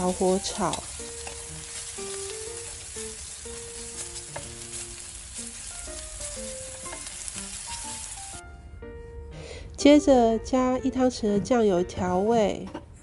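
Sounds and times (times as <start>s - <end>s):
mushrooms sizzling in oil: 0.0s - 8.4s
soft background music: 0.0s - 13.0s.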